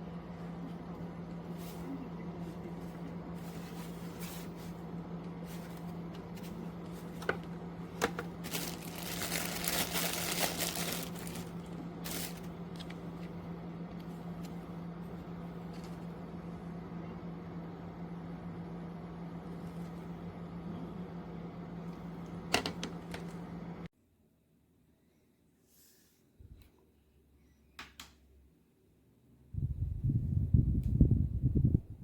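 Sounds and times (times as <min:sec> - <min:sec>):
box fan humming: 0:00.0 - 0:23.9
crinkly rustling handling noise: 0:01.6 - 0:13.3.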